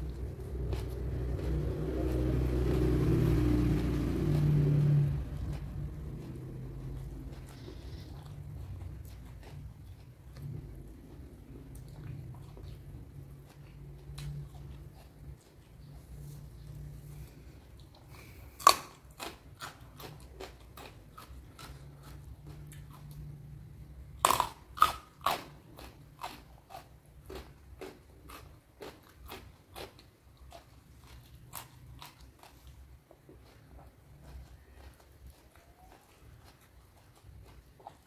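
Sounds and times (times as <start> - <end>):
crunching chews: 0.0 - 38.0
loud crunchy bites: 24.2 - 30.1.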